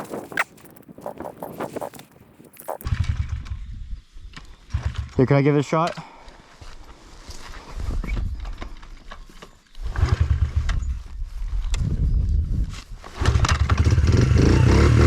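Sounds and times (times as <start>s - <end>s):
dirt bike engine kick-starting: 2.8s - 3.8s, 4.4s - 5.5s, 9.8s - 11.0s, 13.2s - 14.4s.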